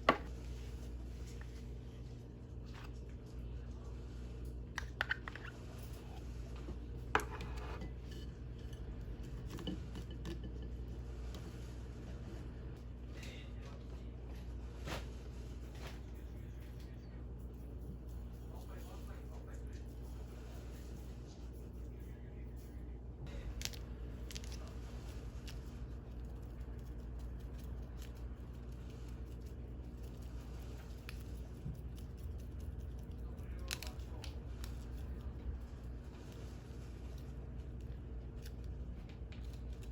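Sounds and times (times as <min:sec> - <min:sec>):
steady low hum: 0:00.0 - 0:39.9
food handling clicks and crinkles: 0:00.4 - 0:10.9, 0:23.3 - 0:39.9.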